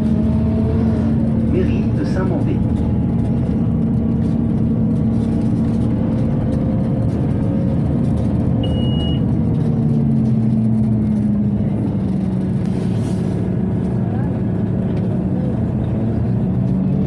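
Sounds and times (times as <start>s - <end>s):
bus diesel engine running: 0.0s - 17.0s
short high beep: 8.6s - 9.2s.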